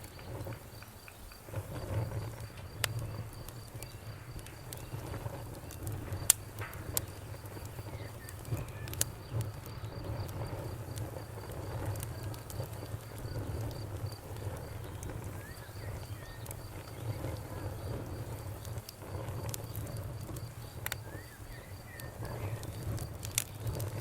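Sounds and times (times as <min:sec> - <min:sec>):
bonfire crackling and popping: 0:00.0 - 0:24.0
cricket chirping: 0:00.0 - 0:24.0.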